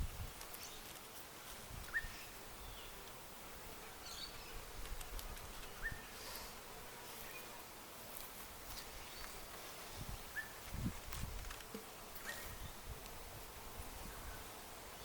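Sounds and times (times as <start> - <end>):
honeybees humming: 0.5 - 15.0
small bird chirping: 1.9 - 3.0, 5.4 - 6.2.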